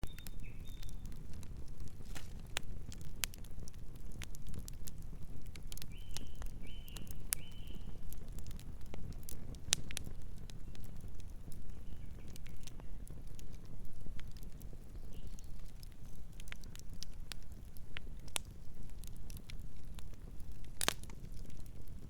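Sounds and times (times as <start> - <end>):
night bird chirps: 0.0 - 1.0, 5.9 - 7.9
campfire crackling and popping: 0.0 - 22.0.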